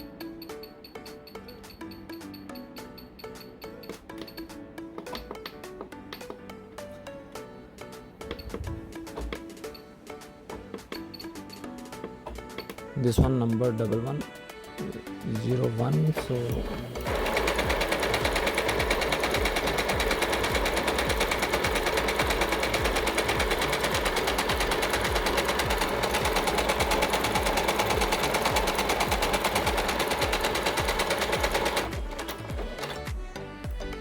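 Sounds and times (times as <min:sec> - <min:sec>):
sewing machine rattling: 0:16.1 - 0:33.1.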